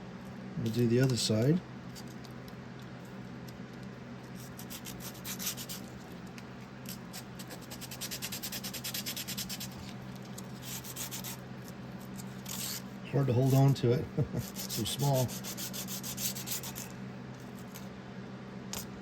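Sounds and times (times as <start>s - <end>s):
sandpaper rasping on metal: 4.5s - 5.8s, 7.4s - 9.8s, 10.6s - 11.4s, 14.4s - 16.9s.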